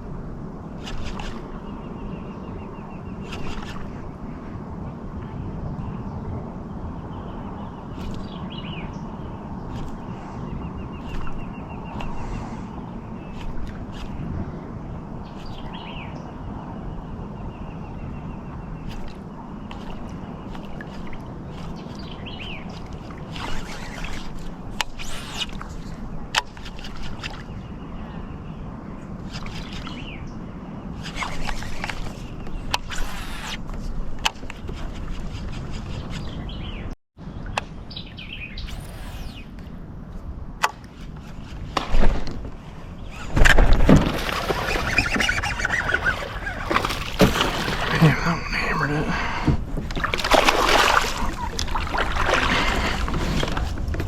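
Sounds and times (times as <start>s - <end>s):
fishing tackle swishes and clicks: 0.8s - 1.6s, 3.2s - 4.0s, 8.0s - 8.3s, 9.6s - 10.1s, 11.0s - 12.3s, 13.3s - 14.3s, 18.8s - 27.6s, 29.2s - 30.1s, 31.0s - 36.4s, 38.6s - 42.4s, 43.1s - 48.8s
birds calling: 6.8s - 39.9s, 40.6s - 53.9s
fish splashing and thrashing water: 18.8s - 27.5s, 40.8s - 54.0s.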